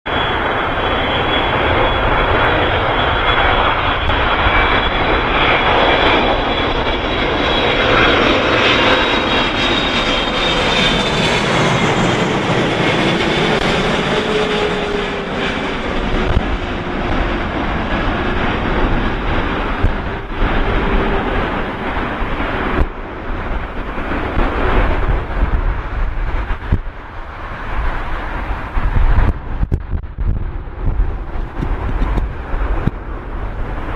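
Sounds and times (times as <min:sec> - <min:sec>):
jet engines whining: 0:00.1 - 0:33.9
low rumble: 0:00.1 - 0:33.9.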